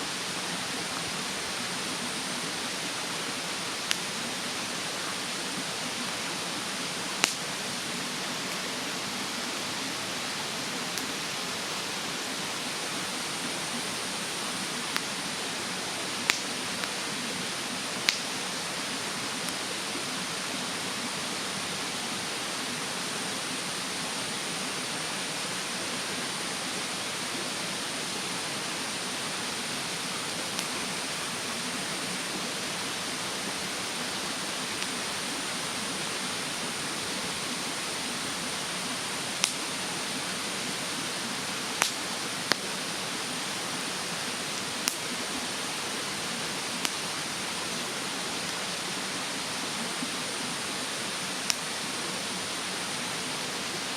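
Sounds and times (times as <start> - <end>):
stream water rushing: 0.0 - 53.9
wood fire crackling pops: 7.2 - 7.5, 16.2 - 16.9, 18.0 - 18.3, 39.4 - 39.6, 41.8 - 42.7, 44.6 - 45.1.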